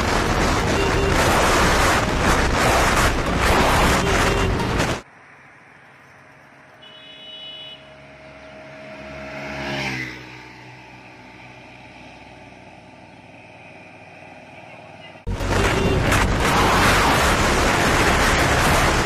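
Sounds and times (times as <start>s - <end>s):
motor vehicle passing by: 7.8s - 15.2s.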